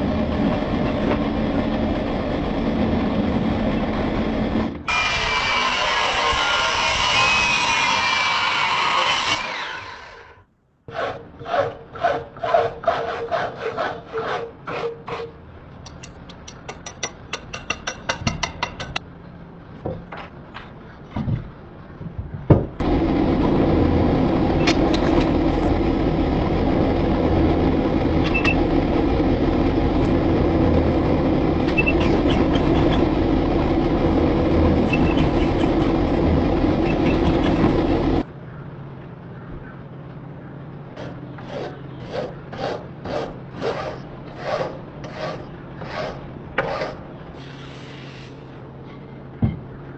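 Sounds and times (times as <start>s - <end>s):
grinding on steel: 4.9s - 10.3s, 23.8s - 38.2s.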